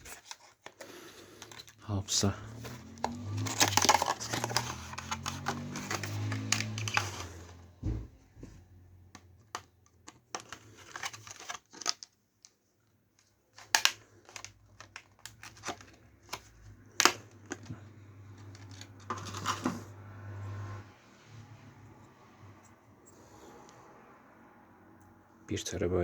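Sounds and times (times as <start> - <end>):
plastic parts clicking and tapping: 0.0 - 1.8, 2.5 - 7.6, 9.1 - 12.6, 13.2 - 19.7
packaging rustling: 0.0 - 7.7, 10.1 - 12.2, 13.5 - 20.0.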